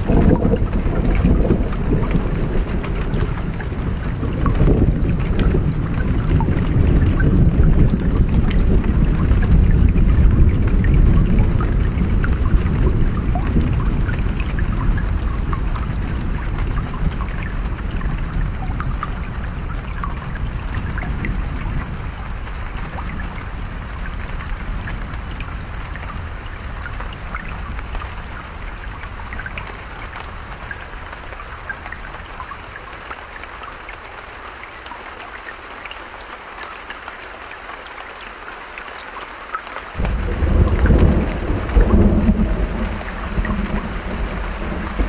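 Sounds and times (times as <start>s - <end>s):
loud peal of thunder: 0.0s - 14.5s, 40.0s - 45.0s
low thunder rumble: 0.0s - 30.7s, 40.0s - 45.0s
steady rain: 0.0s - 45.0s.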